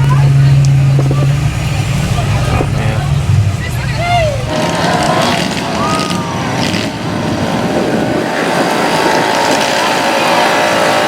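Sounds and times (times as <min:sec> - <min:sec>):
rising and falling pitch glide: 0:00.0 - 0:11.0
vehicle engines running: 0:00.0 - 0:11.0.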